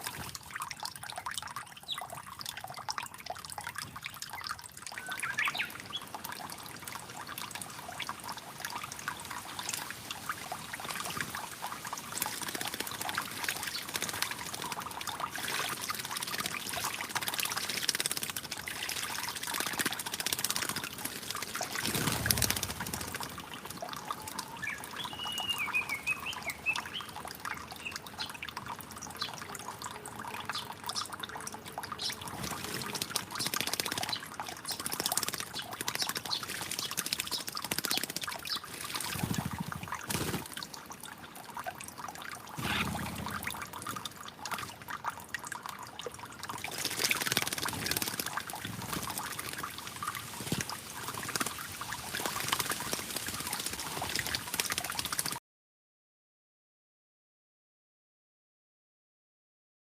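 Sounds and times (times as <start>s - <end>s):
water trickling and splashing: 0.0s - 55.4s
warbling bird call: 24.2s - 27.1s, 42.6s - 43.7s.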